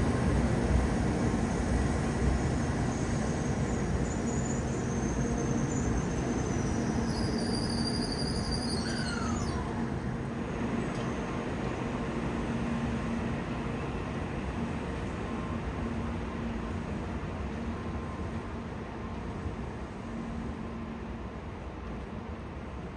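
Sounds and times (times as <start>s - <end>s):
train rumble with low hum: 0.0s - 22.9s.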